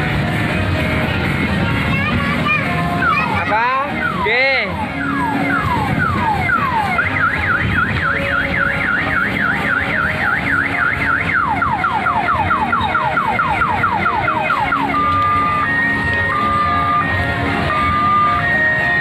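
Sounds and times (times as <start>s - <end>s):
electronic siren warbling: 3.0s - 19.0s.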